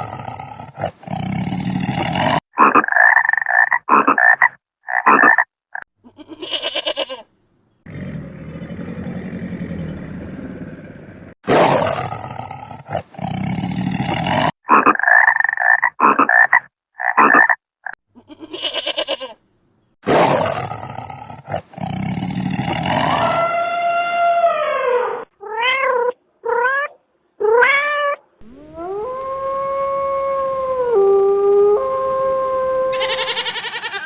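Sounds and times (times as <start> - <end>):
harsh animal roar: 0.0 - 2.4, 7.8 - 14.6, 20.1 - 25.3
cat meowing: 25.4 - 28.2, 32.9 - 34.0
long lowing call: 28.4 - 33.9.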